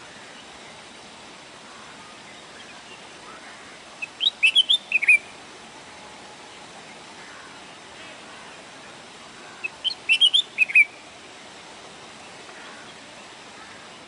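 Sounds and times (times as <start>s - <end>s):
steady hiss: 0.0s - 14.0s
sparrow chirping: 4.0s - 5.3s, 9.5s - 11.0s.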